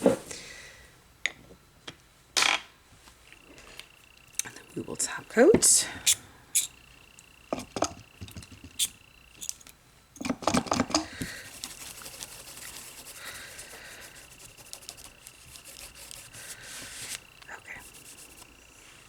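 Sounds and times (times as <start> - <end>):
small tools and bottles clicking: 5.6 - 11.8
soft continuous rubbing: 11.2 - 19.0.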